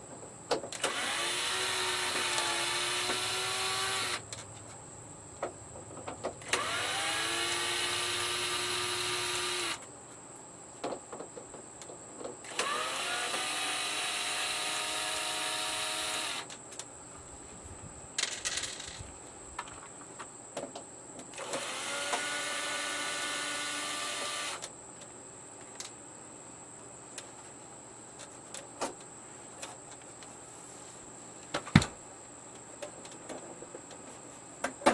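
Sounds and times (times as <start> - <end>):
drill motor whining: 0.8 - 4.2, 6.4 - 9.8, 12.5 - 16.5, 21.4 - 24.6.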